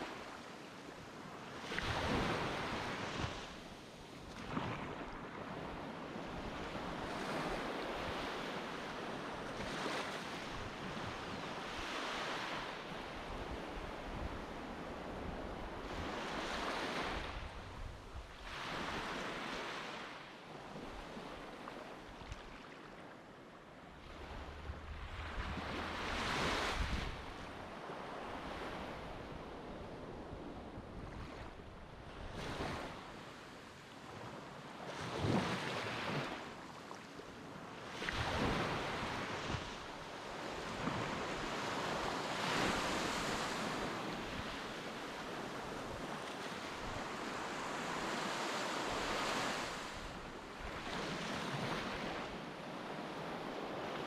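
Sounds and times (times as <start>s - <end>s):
sea waves breaking on beach: 24.0s - 29.7s, 32.2s - 54.0s.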